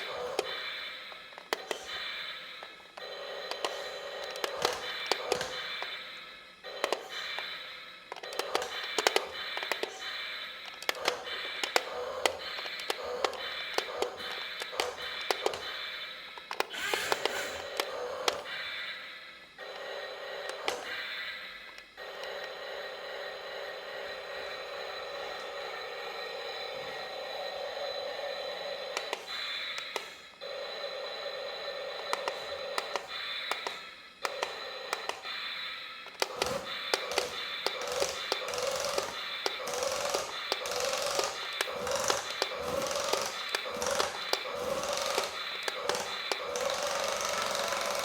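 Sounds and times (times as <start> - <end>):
small electric motor whining: 36.0 - 48.0.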